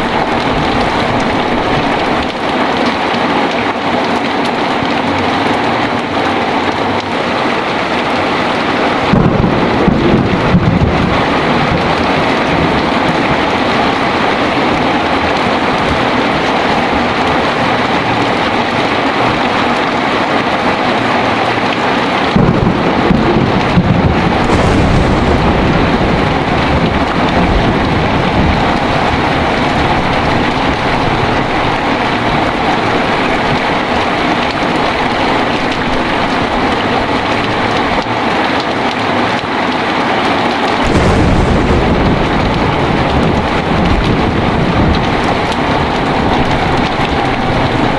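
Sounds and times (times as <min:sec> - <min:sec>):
low rumble of thunder: 0:00.0 - 0:02.8, 0:07.9 - 0:38.3, 0:40.8 - 0:47.9
heavy rain pouring: 0:00.0 - 0:47.9
deep low rumble: 0:24.2 - 0:36.3.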